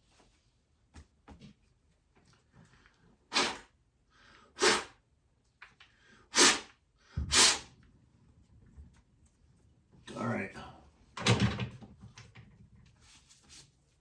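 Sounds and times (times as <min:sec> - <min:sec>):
person blowing puffs of breath: 0:03.3 - 0:05.0, 0:06.0 - 0:07.7.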